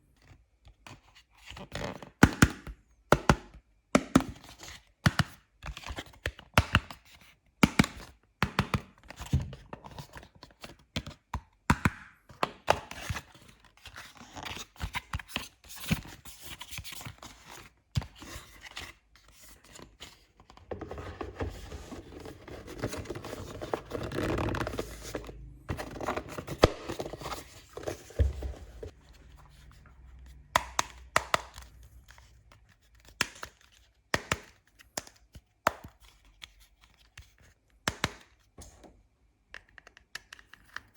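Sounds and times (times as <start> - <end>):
packaging rustling: 20.5 - 29.0.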